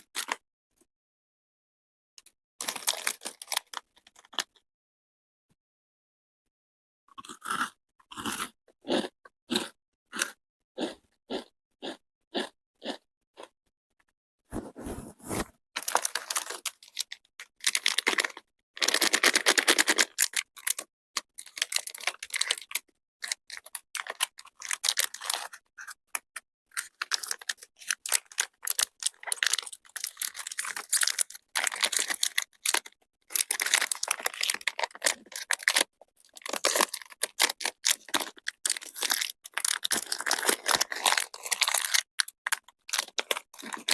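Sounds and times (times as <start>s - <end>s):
chocolate crunching: 2.6s - 3.7s, 15.8s - 26.0s, 26.7s - 43.9s.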